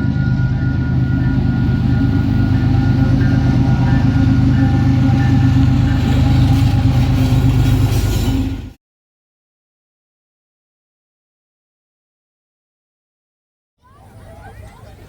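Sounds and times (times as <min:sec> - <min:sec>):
locomotive engine rumble: 0:00.0 - 0:08.8.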